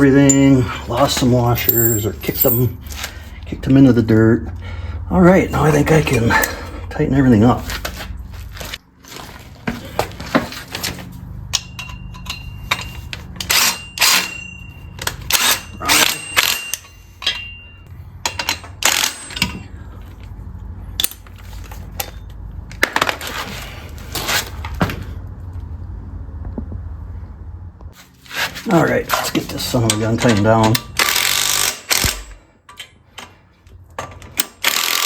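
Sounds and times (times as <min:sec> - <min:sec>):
metal tools clinking on metal: 0:00.0 - 0:03.0, 0:05.2 - 0:06.9, 0:11.5 - 0:19.8.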